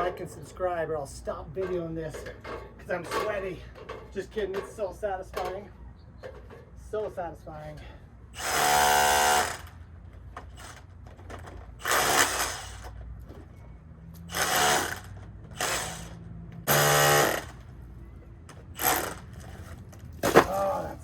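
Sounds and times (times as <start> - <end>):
power tool motor whining: 8.4 - 9.8, 11.8 - 13.0, 14.2 - 17.6, 18.8 - 19.6.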